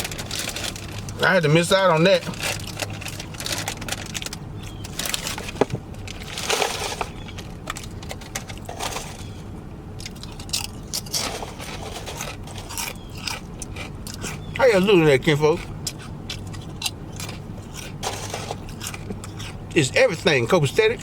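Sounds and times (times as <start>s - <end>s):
low steady hum: 0.0s - 21.0s
chewing and lip smacking: 10.0s - 20.8s.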